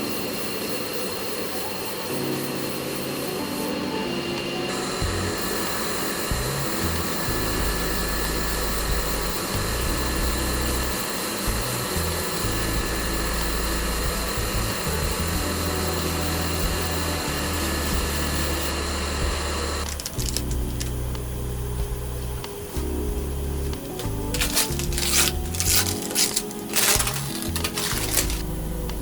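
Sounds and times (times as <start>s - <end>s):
music with bass line: 6.2s - 29.0s.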